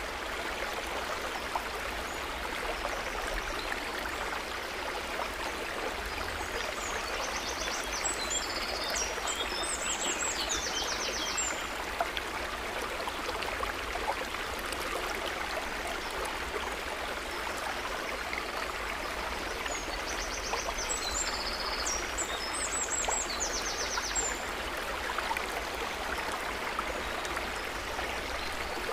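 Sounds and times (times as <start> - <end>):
trickling babbling water: 0.0 - 28.9.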